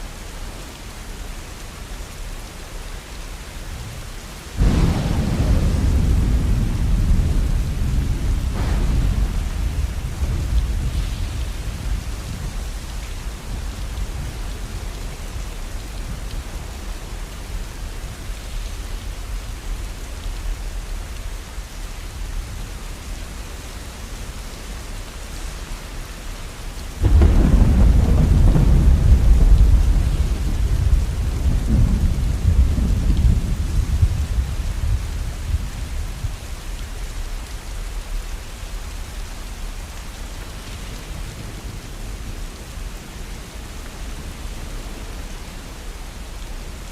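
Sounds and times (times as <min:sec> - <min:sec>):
steady rain: 0:00.0 - 0:46.9
thunder rumbling: 0:04.6 - 0:18.2, 0:27.0 - 0:36.4.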